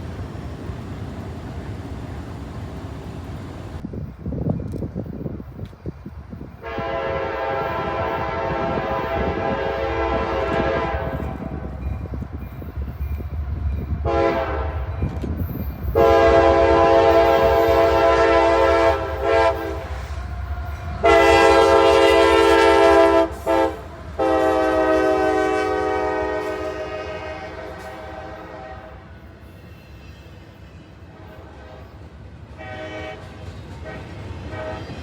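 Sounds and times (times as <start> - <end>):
train rumble: 0.0 - 35.0
locomotive air horn blasts: 6.6 - 11.6, 14.0 - 14.9, 15.9 - 20.2, 21.0 - 29.1, 31.2 - 35.0.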